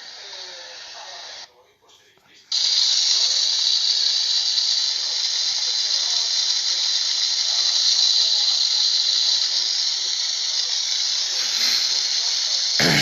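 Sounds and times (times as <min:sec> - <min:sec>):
water fountain spray hissing: 0:00.0 - 0:01.5, 0:02.5 - 0:13.0.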